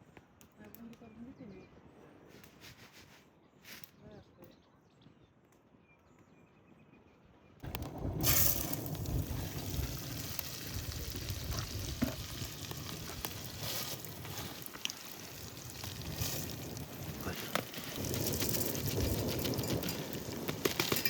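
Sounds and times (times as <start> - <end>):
fish frying in hot oil: 7.7 - 21.0.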